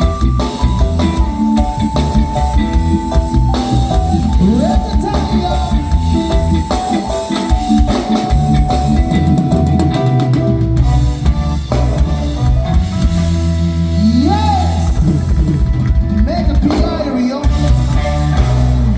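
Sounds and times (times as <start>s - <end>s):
bass: 0.0s - 18.9s
drum kit: 0.0s - 18.9s
live band playing: 0.0s - 18.9s.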